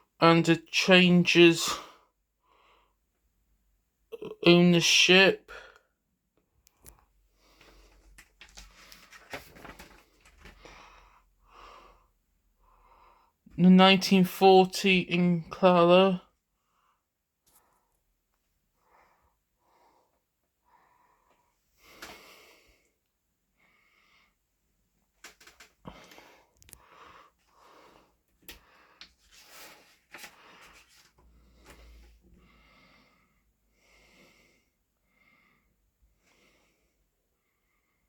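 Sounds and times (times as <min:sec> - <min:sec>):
breaths close to microphone: 0:07.4 - 0:13.4, 0:25.8 - 0:37.0.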